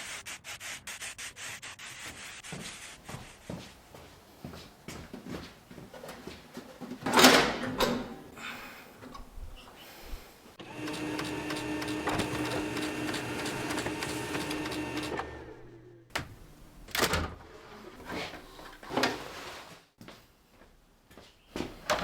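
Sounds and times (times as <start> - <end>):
handling and rubbing noises: 0.0 - 7.1.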